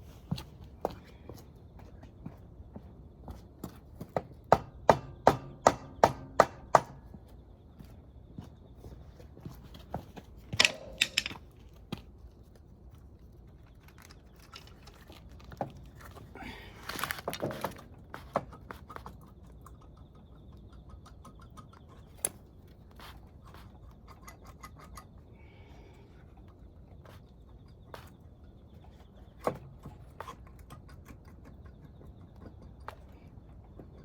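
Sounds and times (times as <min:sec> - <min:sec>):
metal tools clinking: 0:10.5 - 0:11.6.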